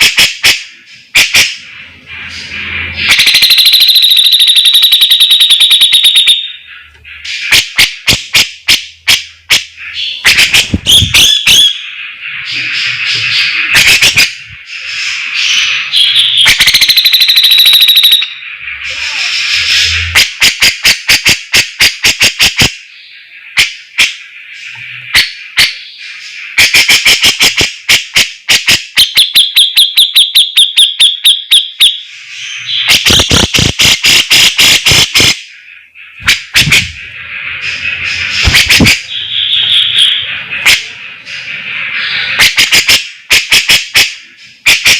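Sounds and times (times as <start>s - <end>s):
bulbul singing shrill trills: 0.1s - 18.5s.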